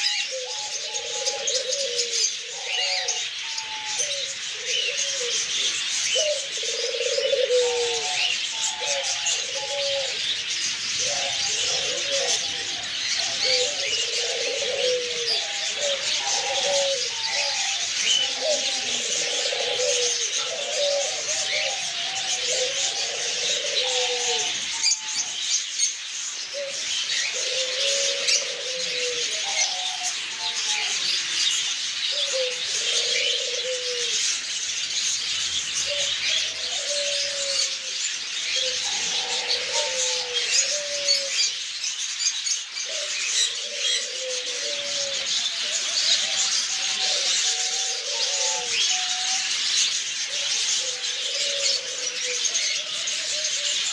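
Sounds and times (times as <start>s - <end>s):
caged birds chirping: 0.0s - 53.9s
lower falling bird calls: 0.0s - 53.9s.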